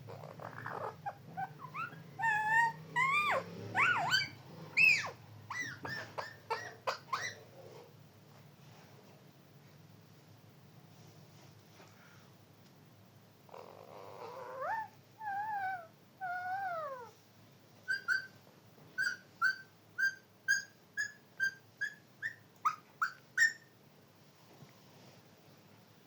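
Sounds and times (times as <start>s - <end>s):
parrot whistling: 17.9s - 18.3s, 19.0s - 23.7s.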